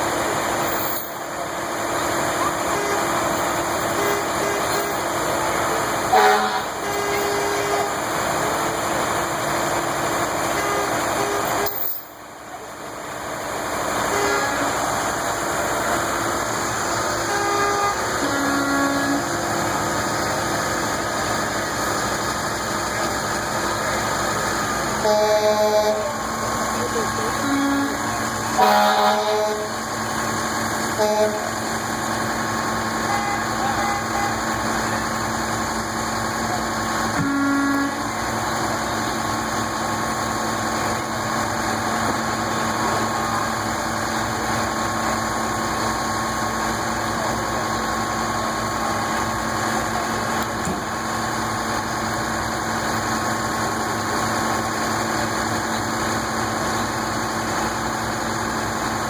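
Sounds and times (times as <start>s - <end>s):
vehicles running: 0.0s - 59.0s
vehicle horn toots: 3.9s - 5.0s, 6.1s - 8.0s, 10.6s - 11.8s, 14.1s - 14.8s, 17.2s - 19.4s, 25.0s - 26.2s, 27.4s - 28.0s, 28.6s - 29.7s, 31.0s - 31.5s, 33.1s - 34.4s, 37.2s - 38.1s.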